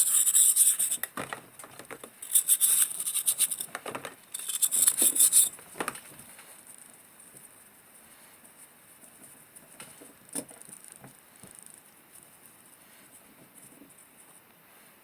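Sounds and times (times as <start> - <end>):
small objects clicking and tapping: 0.0 - 6.0.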